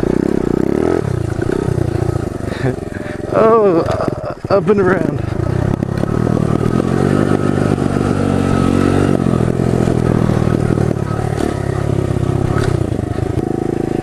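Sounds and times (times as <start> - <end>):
pit bike engine revving: 0.0 - 14.0.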